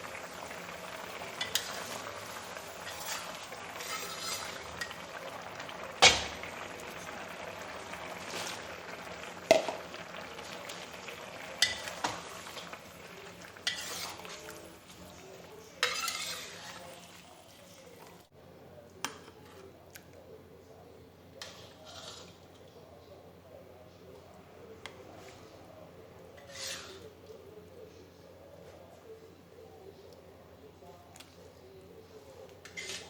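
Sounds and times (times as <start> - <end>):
food frying sizzle: 0.0 - 18.3.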